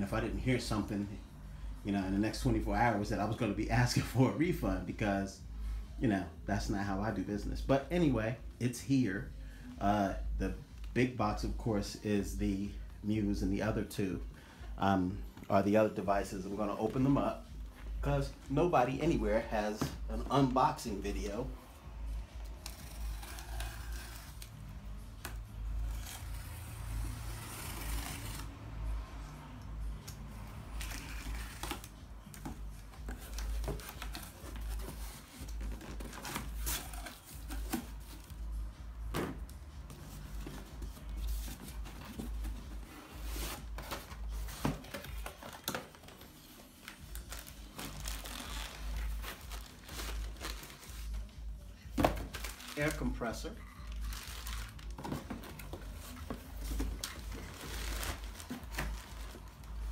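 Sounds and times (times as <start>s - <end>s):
tape tearing: 22.4s - 28.6s, 30.0s - 38.4s, 39.2s - 51.3s, 51.9s - 59.9s
packing material crinkling: 40.4s - 51.3s, 52.0s - 59.9s.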